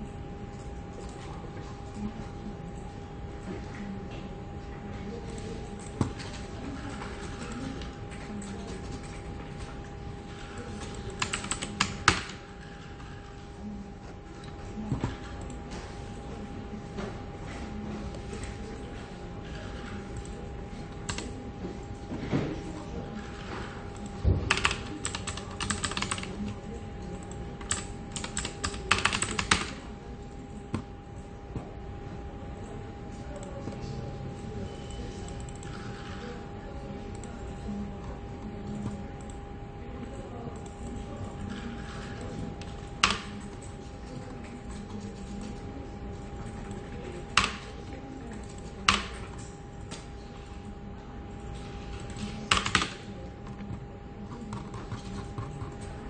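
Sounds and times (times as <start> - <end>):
faint electrical hum: 0.0 - 56.0
computer keyboard typing: 5.0 - 13.4, 17.9 - 21.4, 23.0 - 30.9, 34.9 - 39.4, 40.0 - 50.6, 51.4 - 56.0.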